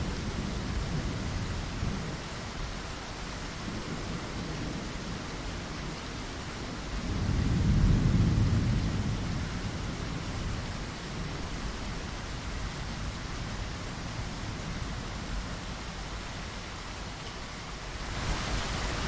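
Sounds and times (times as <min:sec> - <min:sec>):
rain hiss: 0:00.0 - 0:19.0
thunder rumble: 0:06.6 - 0:15.7.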